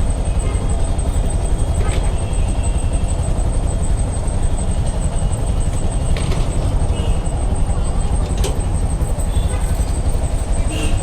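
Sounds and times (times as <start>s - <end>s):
traffic and engines rumbling: 0.0s - 11.0s.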